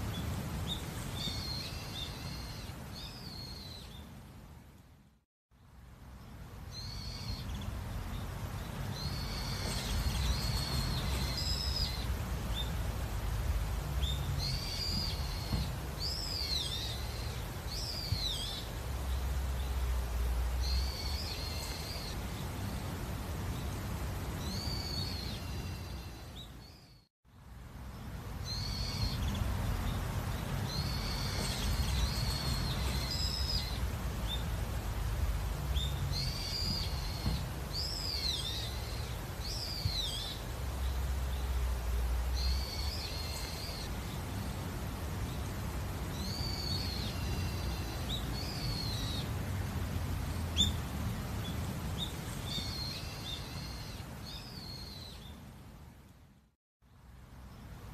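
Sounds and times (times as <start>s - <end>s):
small birds singing: 0.0s - 4.8s, 5.5s - 56.0s
low background rumble: 0.0s - 57.9s.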